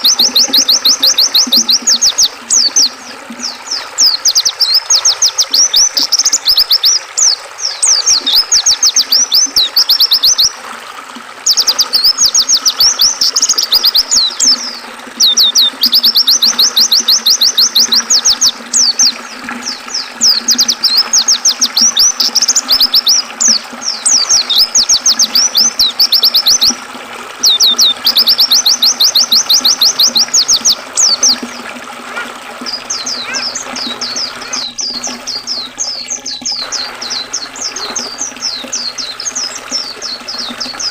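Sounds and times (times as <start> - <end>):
bird twittering trills: 0.0 - 10.6, 11.4 - 26.8, 27.4 - 40.9
river water rushing: 36.6 - 40.3.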